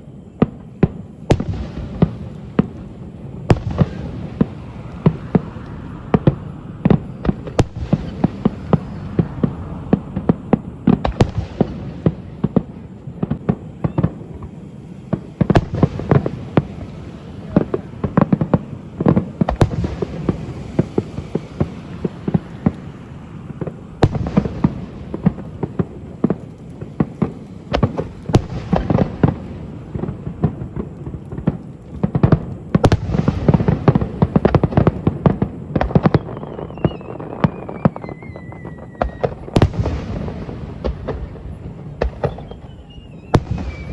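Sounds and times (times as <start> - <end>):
fireworks bangs: 0.0 - 43.9
fireworks crackling and rumble: 0.0 - 43.9
whistle falling in pitch: 36.1 - 39.5, 42.3 - 43.9.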